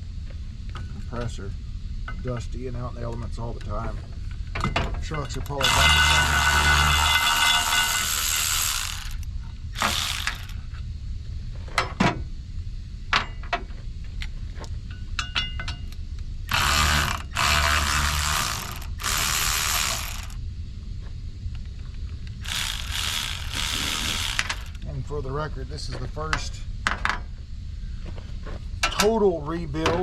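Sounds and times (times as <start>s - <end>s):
ratchet wrench rasping clicks: 5.4s - 10.6s, 16.5s - 20.4s, 22.4s - 24.9s.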